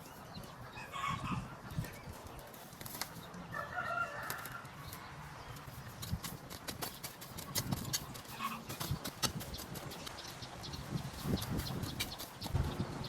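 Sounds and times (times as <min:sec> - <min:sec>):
fowl calling: 0:08.3 - 0:08.8.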